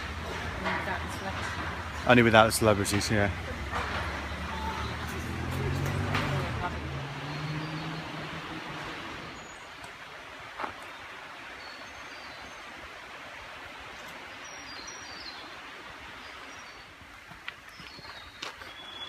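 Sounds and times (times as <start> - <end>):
steady forest hiss: 0.0 - 19.0
faint high bird chirps: 17.7 - 19.0.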